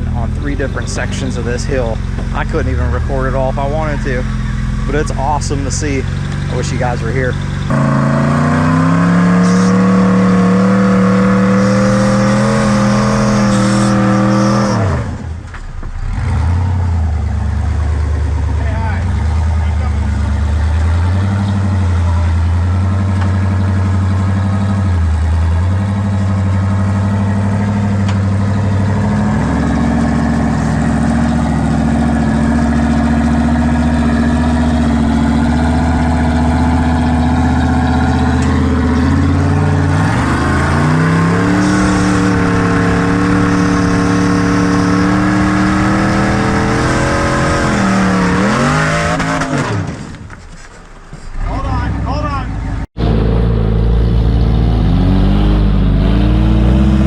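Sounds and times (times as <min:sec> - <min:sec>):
buggy engine revving under load: 0:00.0 - 0:50.4, 0:51.3 - 0:57.0.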